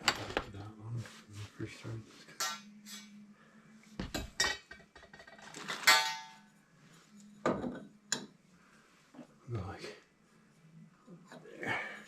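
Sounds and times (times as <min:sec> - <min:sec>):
metal pipe and tools clinking: 0:02.4 - 0:03.2, 0:04.1 - 0:06.5.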